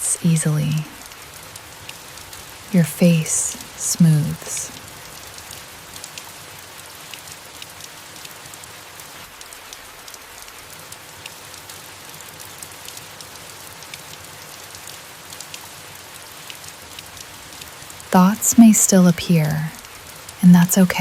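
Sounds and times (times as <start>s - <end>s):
raindrops ticking: 0.0s - 8.6s, 12.4s - 21.0s
rain falling on leaves: 0.0s - 21.0s.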